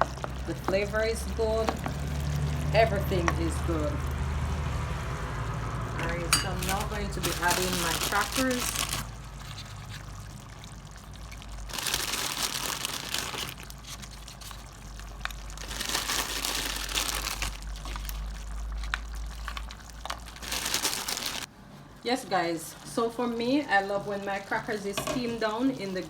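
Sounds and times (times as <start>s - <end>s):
crackers crinkling and crunching: 6.1s - 21.5s.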